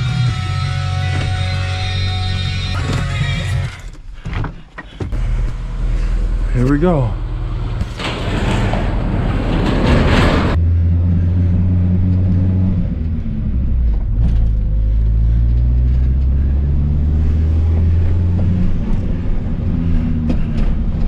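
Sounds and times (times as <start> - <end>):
car engine drone inside cabin: 5.1 - 8.0, 10.5 - 21.0.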